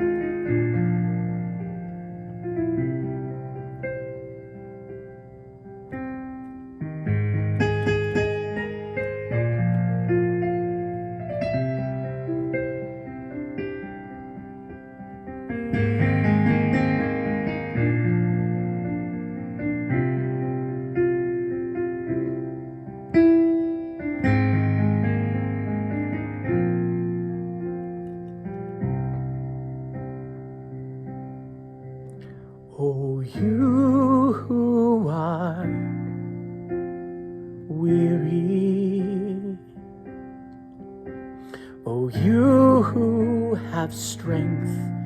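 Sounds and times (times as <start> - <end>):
electric piano chords: 0.0 - 45.0.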